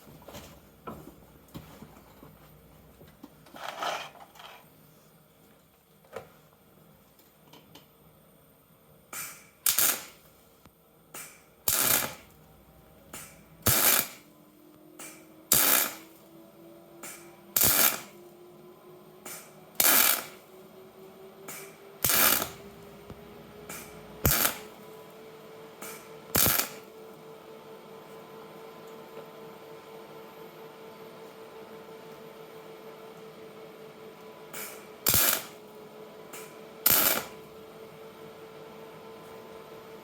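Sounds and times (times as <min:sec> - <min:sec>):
welder bursts: 0:09.1 - 0:10.3, 0:11.2 - 0:14.4, 0:15.0 - 0:16.3, 0:17.0 - 0:18.2, 0:19.2 - 0:20.5, 0:21.4 - 0:25.2, 0:25.8 - 0:27.0, 0:34.5 - 0:37.6
faint rising hum: 0:12.2 - 0:34.5.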